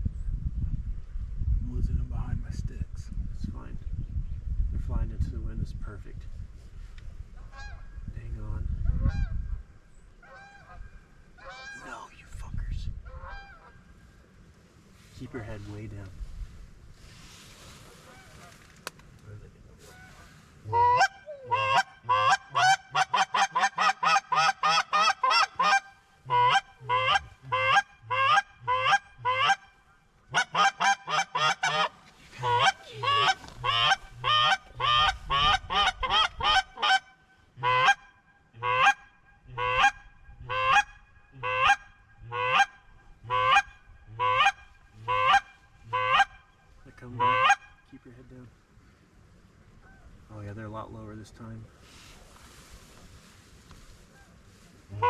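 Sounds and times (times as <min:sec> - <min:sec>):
goose call honking: 0:11.4 - 0:11.8, 0:19.9 - 0:47.9.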